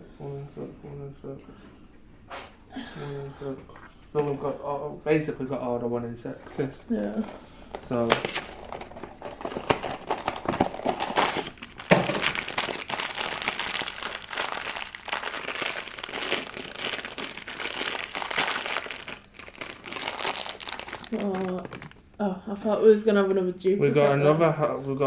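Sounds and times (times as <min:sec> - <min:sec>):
packaging crinkling: 0:07.0 - 0:22.2.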